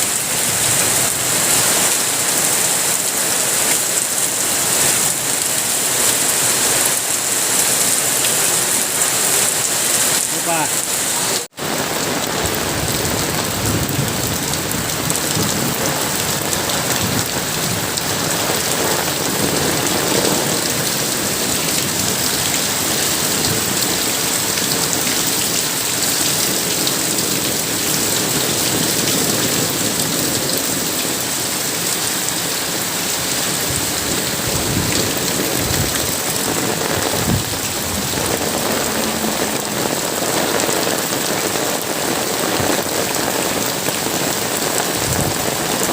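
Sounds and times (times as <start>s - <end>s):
heavy rain pouring: 0.0s - 45.9s
low rumbles: 33.4s - 43.7s.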